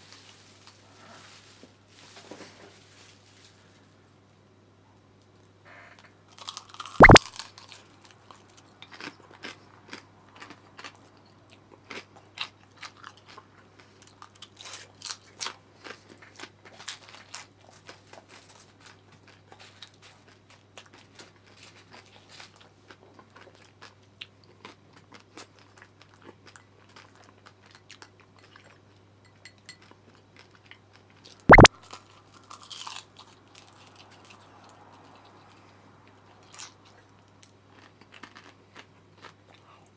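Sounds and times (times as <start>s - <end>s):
crunchy chewing of fried food: 7.6s - 29.0s, 29.7s - 31.3s, 32.1s - 39.9s.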